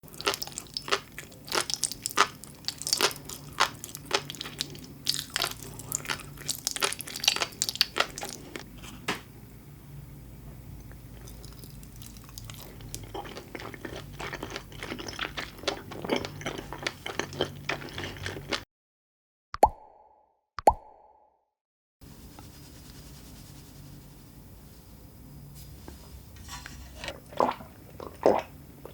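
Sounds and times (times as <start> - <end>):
crackling bites and chewing: 0.1 - 8.7, 11.2 - 18.6.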